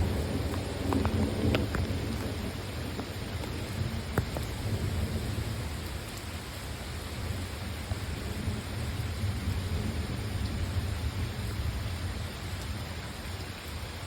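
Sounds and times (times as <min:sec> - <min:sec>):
low rolling thunder: 0:00.0 - 0:05.9
steady rain: 0:00.0 - 0:14.0.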